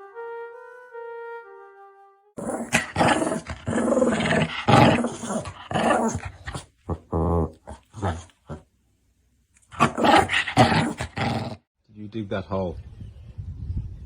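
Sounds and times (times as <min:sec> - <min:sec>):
dog growling: 0:02.4 - 0:08.7, 0:09.7 - 0:11.7.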